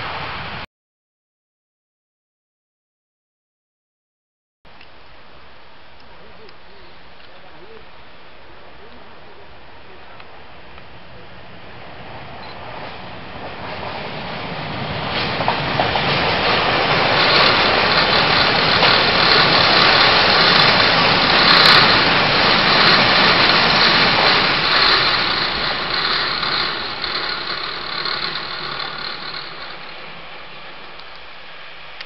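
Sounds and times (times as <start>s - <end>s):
train wheels rumbling on rails: 10.2s - 31.3s.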